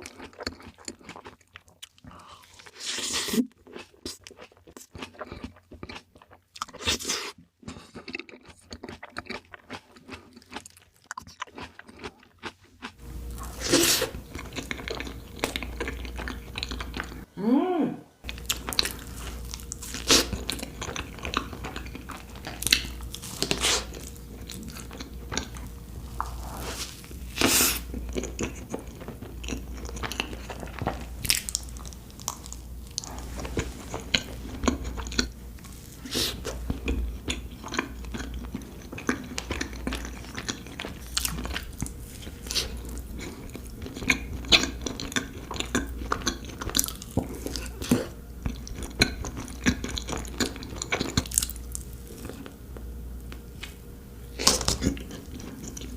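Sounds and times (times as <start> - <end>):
chewing and biting cake: 0.0 - 17.3, 18.2 - 55.9
steady low hum: 13.0 - 55.9.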